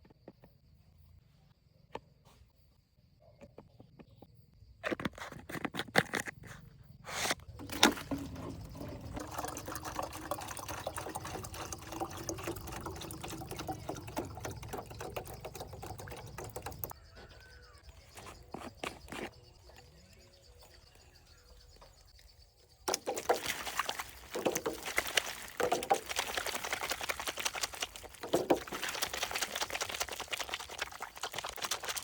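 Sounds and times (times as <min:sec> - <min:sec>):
handling knocks and clatters: 0:07.4 - 0:17.0, 0:22.9 - 0:30.8
water pouring: 0:07.4 - 0:17.0, 0:22.9 - 0:32.0.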